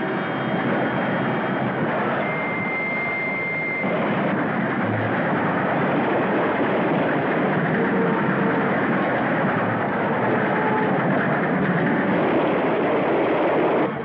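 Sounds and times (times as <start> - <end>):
high steady tone: 0.0 - 11.2
train rushing and rattling: 0.0 - 14.0.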